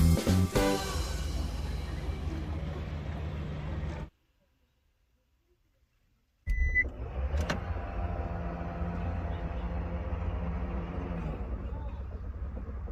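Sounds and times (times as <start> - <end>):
car engine running: 0.8 - 4.1, 6.5 - 12.9
short electronic beep: 6.5 - 6.9.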